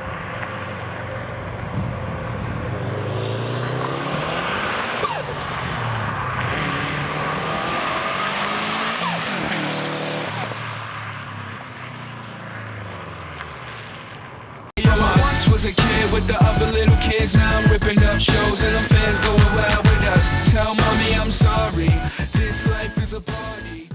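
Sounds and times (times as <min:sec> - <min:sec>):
car engine accelerating hard: 0:00.0 - 0:22.8.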